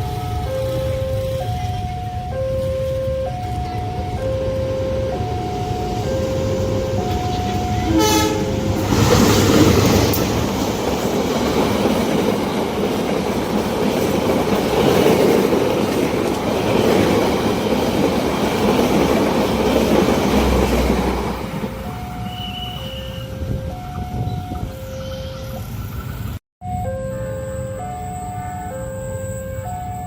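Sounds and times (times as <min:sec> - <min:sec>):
two-tone crossing alarm: 0:00.0 - 0:11.2, 0:21.1 - 0:25.8, 0:26.6 - 0:30.0
train rumbling past: 0:00.0 - 0:30.0
train horn: 0:06.0 - 0:09.2, 0:22.1 - 0:23.6.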